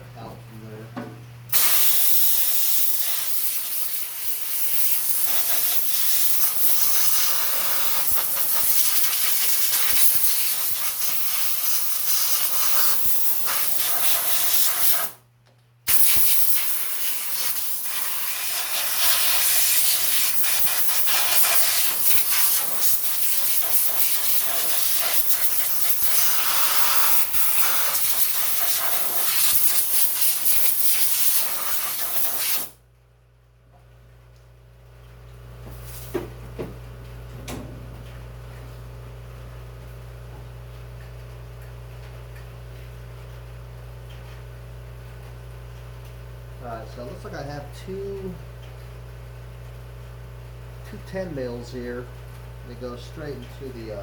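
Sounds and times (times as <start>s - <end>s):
compressed air blow gun hissing: 1.5s - 15.2s, 15.9s - 32.8s.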